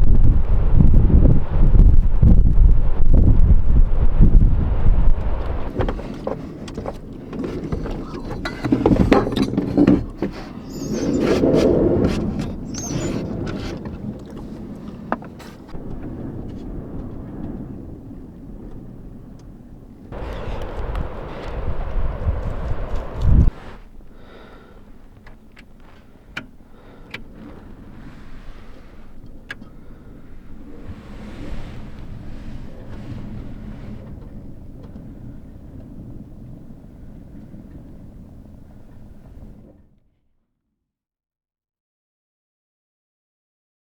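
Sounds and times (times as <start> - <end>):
wind buffeting microphone: 0.0 - 39.9
handling knocks and rustling: 5.7 - 15.8
short high squeaks: 10.4 - 11.6, 12.6 - 13.4.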